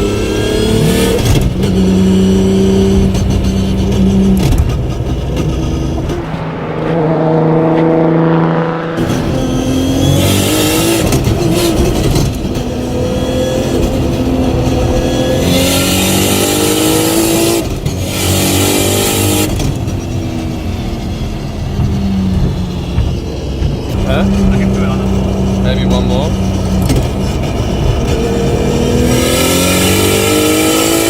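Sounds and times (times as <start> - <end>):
car engine accelerating hard: 0.0 - 31.0
gearbox upshifts: 9.0 - 31.0.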